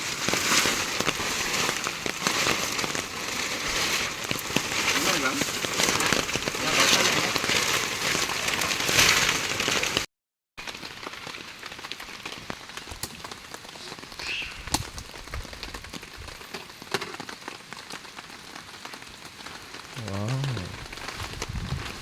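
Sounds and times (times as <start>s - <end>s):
heavy rain with ticking drops: 0.0s - 22.0s
short voice: 20.0s - 20.9s.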